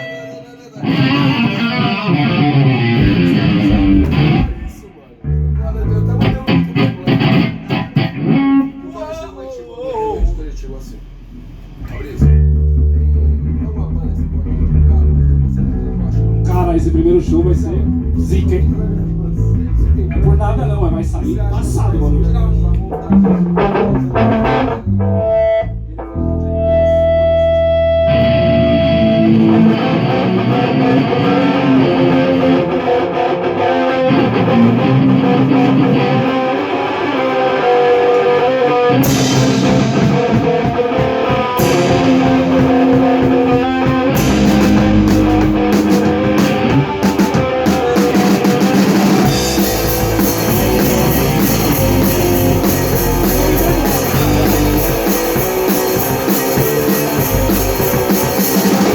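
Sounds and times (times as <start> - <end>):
rock band playing: 0.0 - 9.2, 11.1 - 58.9
held guitar note ringing: 23.0 - 58.8.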